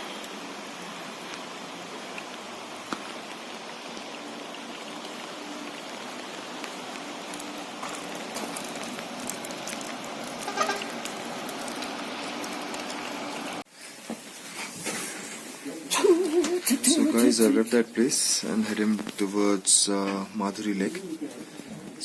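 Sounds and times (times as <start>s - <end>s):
heavy rain falling: 0.0s - 13.6s.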